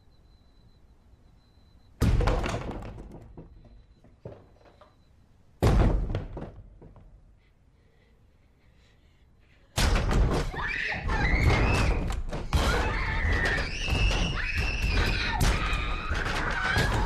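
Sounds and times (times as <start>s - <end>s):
thuds and bangs: 2.0s - 4.6s, 5.6s - 7.1s, 9.8s - 17.0s
high-pitched screaming: 10.5s - 17.0s.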